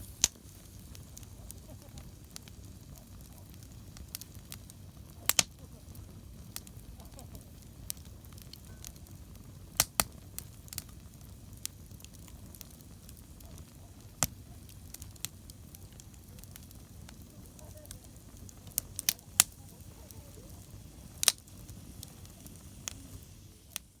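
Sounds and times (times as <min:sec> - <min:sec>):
fire crackling and popping: 0:00.0 - 0:24.0
low rumble of flames: 0:00.0 - 0:24.0.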